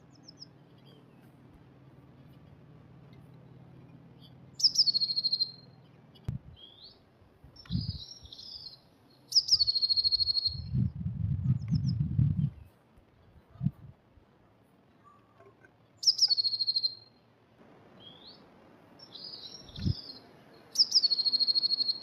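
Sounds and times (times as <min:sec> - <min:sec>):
bird song with fast trill: 0:00.0 - 0:13.5, 0:15.9 - 0:17.3, 0:18.0 - 0:22.0
short high bird calls: 0:04.2 - 0:07.0, 0:07.7 - 0:10.8, 0:15.0 - 0:17.2, 0:19.0 - 0:22.0.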